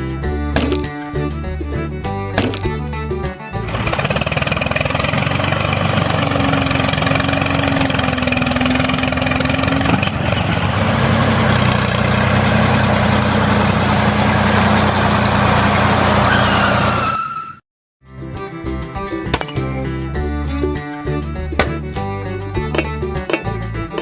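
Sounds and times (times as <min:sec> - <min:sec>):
vehicle engine droning: 0:03.5 - 0:17.2.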